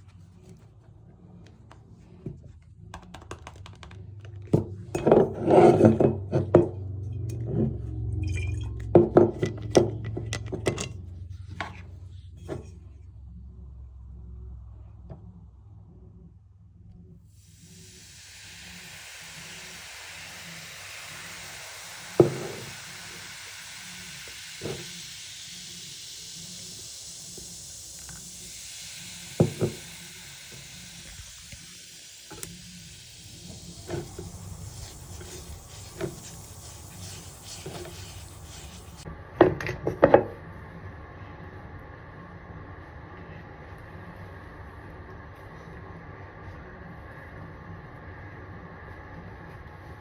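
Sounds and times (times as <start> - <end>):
steady hiss: 17.3 - 39.1.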